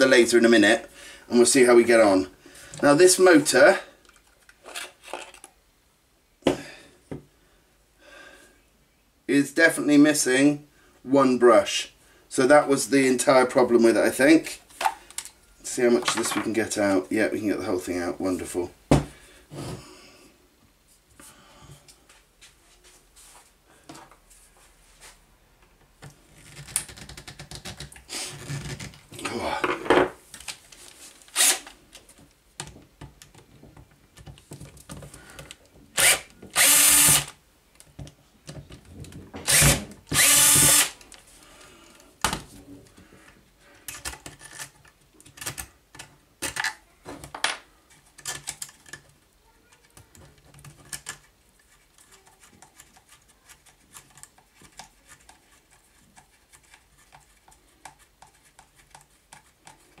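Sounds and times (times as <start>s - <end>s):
power drill running: 31.4s - 31.7s, 36.0s - 37.3s, 39.5s - 41.0s
parts and tools clicking: 43.8s - 49.2s, 49.8s - 55.4s.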